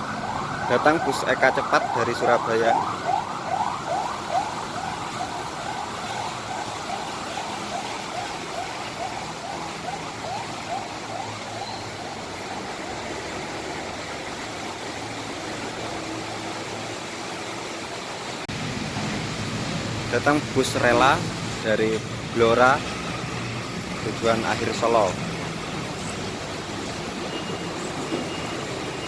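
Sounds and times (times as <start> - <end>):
bus siren horn whooping: 0.0 - 12.4
bus and traffic engines humming: 0.0 - 29.0.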